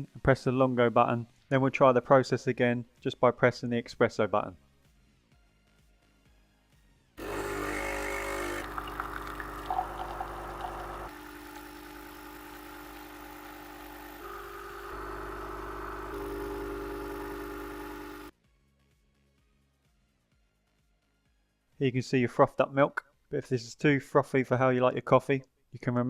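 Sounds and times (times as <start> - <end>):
espresso machine pump buzzing: 7.2 - 18.3.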